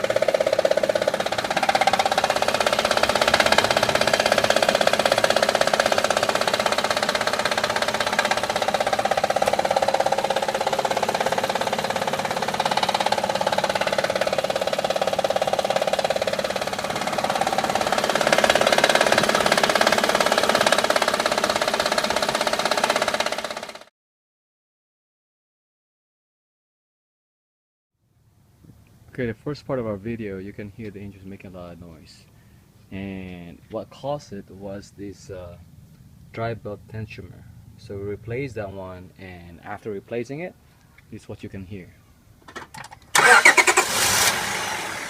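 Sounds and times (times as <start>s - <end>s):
engine belt rattling clatter: 0.0s - 23.9s, 42.4s - 45.0s.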